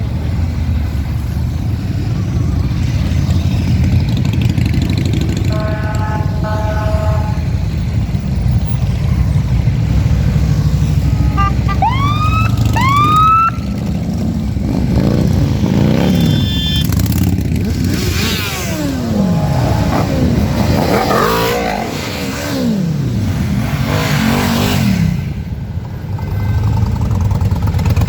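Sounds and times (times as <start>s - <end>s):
motorcycle engines revving: 0.0s - 28.0s
horn blast: 5.4s - 7.7s, 11.0s - 13.0s, 18.2s - 21.7s
police siren whoops: 11.2s - 13.8s.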